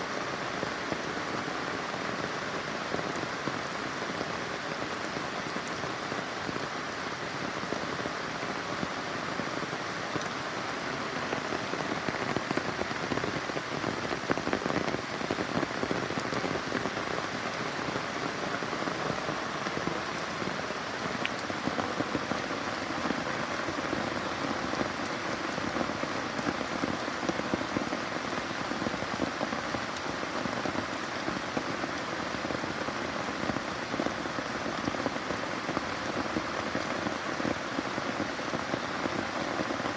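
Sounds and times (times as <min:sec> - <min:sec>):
steady rain falling: 0:00.0 - 0:39.9
rain drops tapping: 0:11.1 - 0:39.9.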